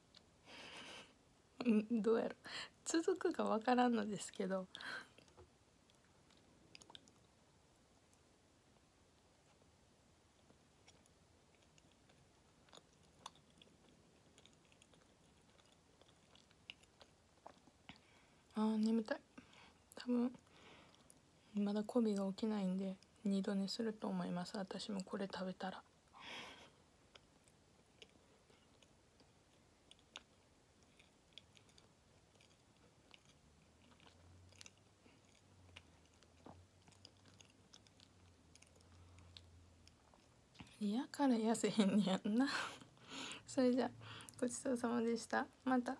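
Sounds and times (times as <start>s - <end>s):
soft chewing: 0.0s - 2.0s, 2.8s - 45.9s.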